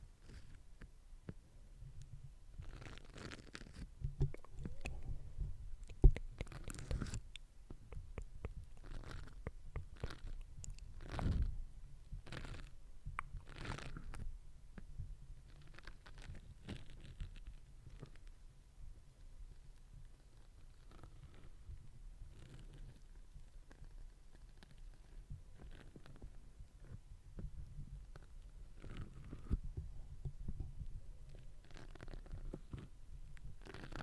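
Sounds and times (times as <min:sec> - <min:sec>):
wet mouth clicks and smacks: 0:04.2 - 0:05.1, 0:05.8 - 0:11.4, 0:12.4 - 0:14.2.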